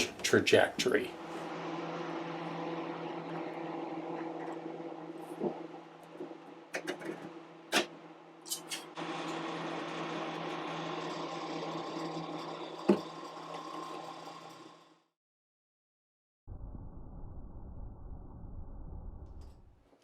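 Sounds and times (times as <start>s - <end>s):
steady machine hum: 0.0s - 6.7s.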